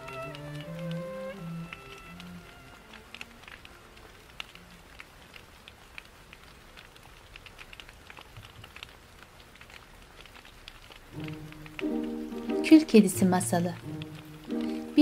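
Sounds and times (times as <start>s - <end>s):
faint music notes: 0.0s - 4.9s, 11.2s - 15.0s
fireplace crackling: 0.0s - 15.0s
rain hissing: 0.0s - 15.0s.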